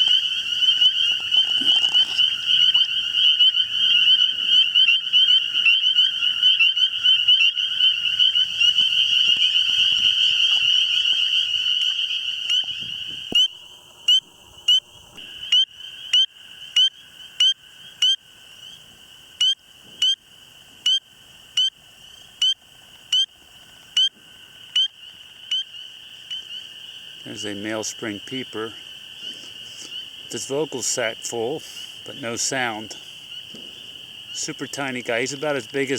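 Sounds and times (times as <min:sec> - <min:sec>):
frog calling short rising peeps: 0:00.0 - 0:18.8, 0:19.4 - 0:20.2, 0:20.8 - 0:30.4
frog chorus: 0:00.0 - 0:35.9.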